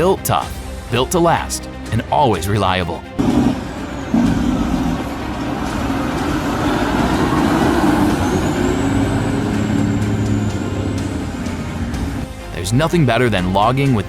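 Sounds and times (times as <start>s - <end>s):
truck diesel engine droning: 3.1s - 14.0s.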